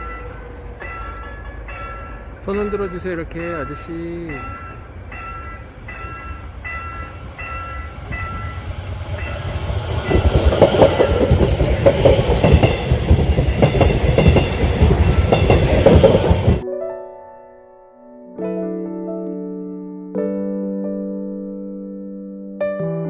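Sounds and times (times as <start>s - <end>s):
level-crossing warning bell: 0.0s - 16.6s
train passing with rumble: 0.0s - 16.6s
wheels clattering over rails: 0.8s - 16.6s.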